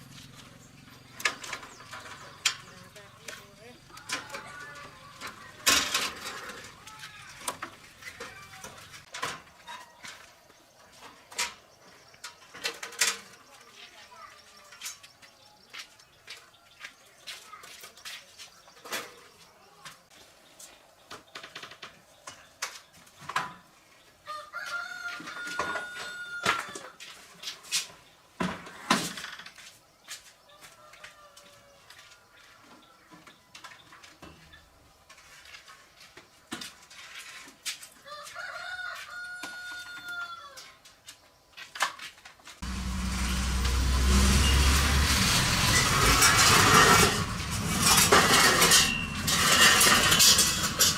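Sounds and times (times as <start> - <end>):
rooster crowing: 24.3 - 26.9, 38.0 - 40.7
scattered clicks and knocks: 44.6 - 50.9.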